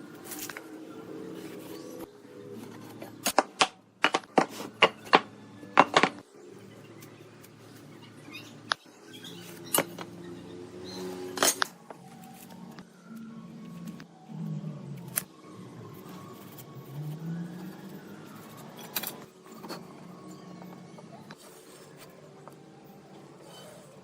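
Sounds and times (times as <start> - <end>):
hard objects knocking and clinking: 3.3 - 6.2.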